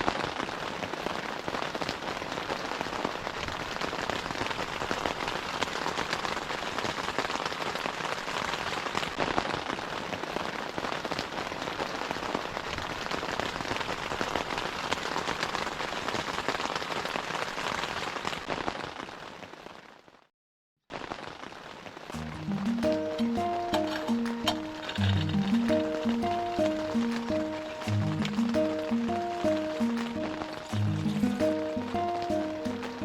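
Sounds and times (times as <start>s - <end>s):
steady rain patter: 0.0s - 20.3s, 20.9s - 33.0s.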